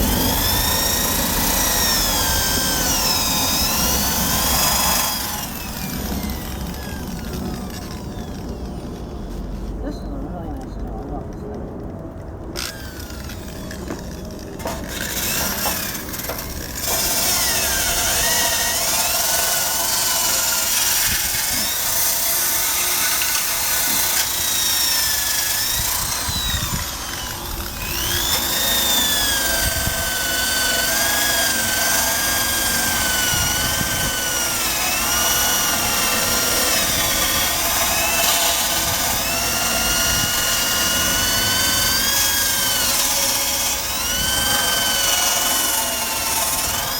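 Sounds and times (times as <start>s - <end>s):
drill wire brush scrubbing metal: 0.0s - 8.7s, 14.6s - 46.9s.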